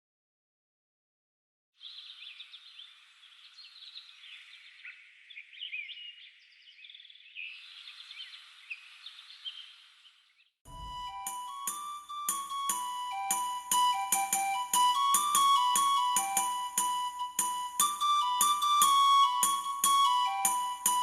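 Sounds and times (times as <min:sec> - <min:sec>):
many birds chirping: 0:01.8 - 0:10.5.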